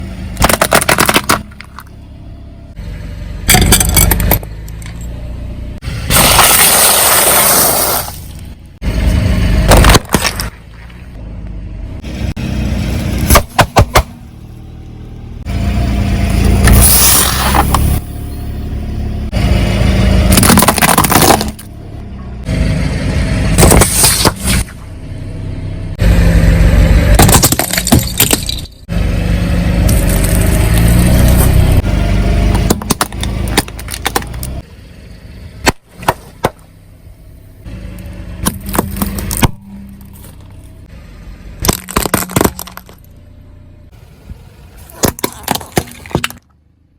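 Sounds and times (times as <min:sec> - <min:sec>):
tyres crushing objects: 0:00.4 - 0:01.9, 0:06.1 - 0:08.3, 0:09.6 - 0:11.0, 0:20.3 - 0:21.7, 0:23.6 - 0:24.7, 0:27.1 - 0:28.8, 0:32.5 - 0:34.6, 0:38.4 - 0:40.5, 0:41.6 - 0:43.1, 0:44.8 - 0:46.6.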